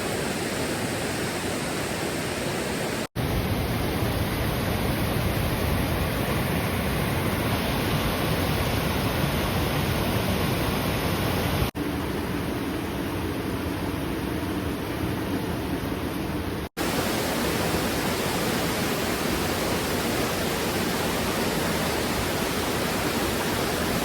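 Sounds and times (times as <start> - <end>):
fast-flowing river water: 16.8 - 24.0.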